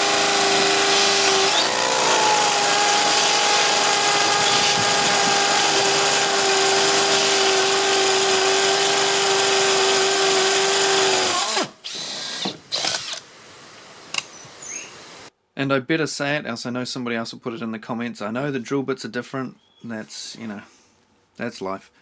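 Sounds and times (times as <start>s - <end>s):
rotary hammer drilling into concrete: 0.0s - 13.2s.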